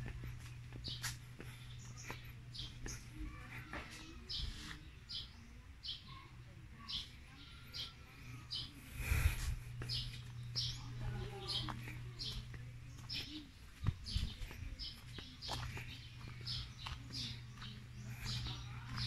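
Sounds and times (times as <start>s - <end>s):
low steady hum: 0.0s - 4.2s, 5.4s - 19.0s.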